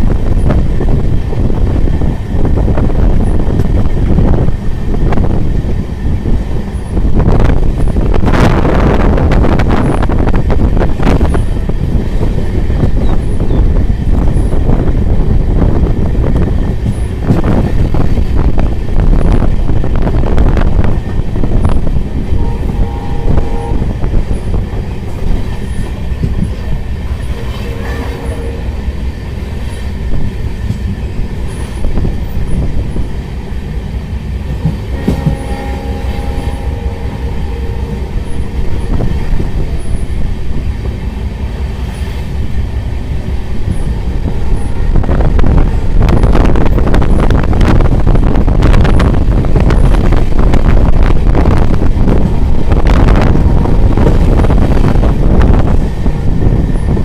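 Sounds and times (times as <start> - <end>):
train rumble on track: 0.0 - 57.0.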